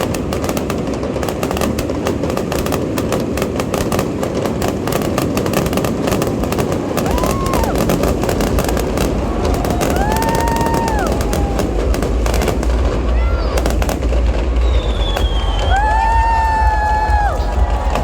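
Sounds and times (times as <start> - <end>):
fireworks bangs and crackles: 0.0 - 18.0
fireworks booms: 0.0 - 18.0
fireworks whistles: 0.0 - 18.0.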